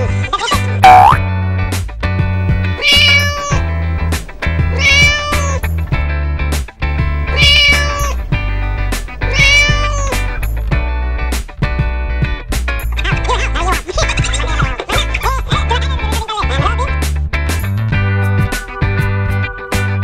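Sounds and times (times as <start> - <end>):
children's backing track with bass: 0.0 - 20.0
cat meowing: 2.6 - 3.7, 4.3 - 5.8, 7.2 - 10.4.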